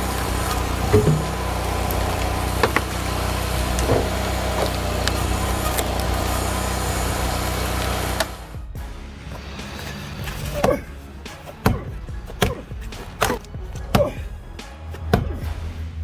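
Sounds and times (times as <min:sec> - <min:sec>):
engine running: 0:00.0 - 0:14.2.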